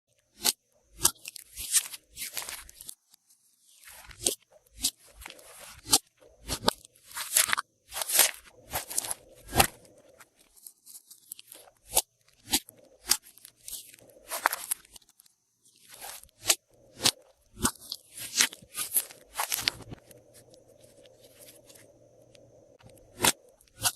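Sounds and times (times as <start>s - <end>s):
slime crackling and popping: 3.8s - 20.2s.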